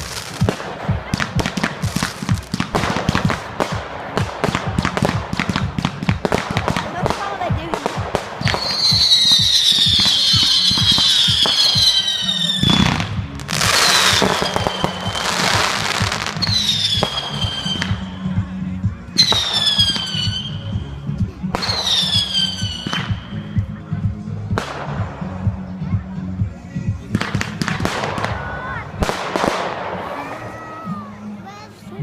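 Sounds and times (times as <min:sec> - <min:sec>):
shrill firework whistles: 0:08.5 - 0:12.8, 0:13.8 - 0:15.3.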